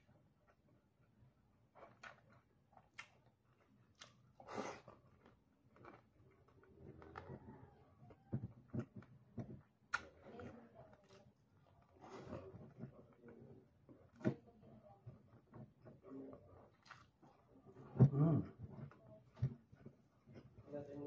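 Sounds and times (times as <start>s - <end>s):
chewing fried chicken: 0.0s - 20.9s
mouth clicks and crunches: 1.7s - 14.3s, 15.8s - 17.6s.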